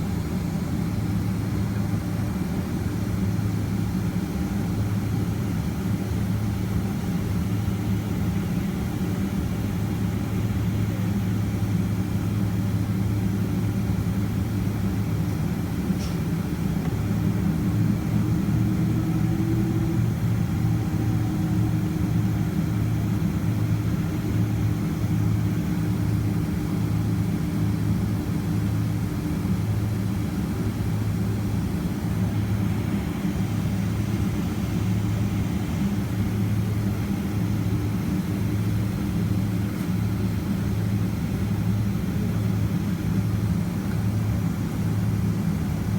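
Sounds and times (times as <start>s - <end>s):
faint steady whine: 0.0s - 45.9s
jet engine cabin hum: 0.0s - 45.9s.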